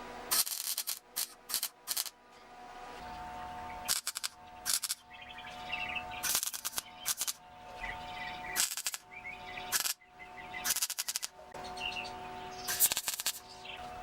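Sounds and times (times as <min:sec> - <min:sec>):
welding crackle: 0:00.3 - 0:02.1, 0:03.8 - 0:05.0, 0:06.2 - 0:07.4, 0:08.6 - 0:09.0, 0:09.7 - 0:10.0, 0:10.6 - 0:11.3, 0:12.7 - 0:13.4
birds chirping: 0:02.2 - 0:14.0.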